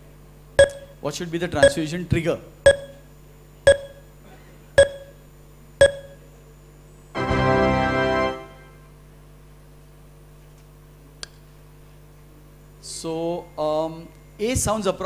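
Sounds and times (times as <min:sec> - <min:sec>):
countdown ticks: 0:00.6 - 0:01.0, 0:01.6 - 0:01.9, 0:02.7 - 0:03.0, 0:03.7 - 0:04.0, 0:04.8 - 0:05.2, 0:05.8 - 0:06.2
short sustained musical chord: 0:07.2 - 0:08.9.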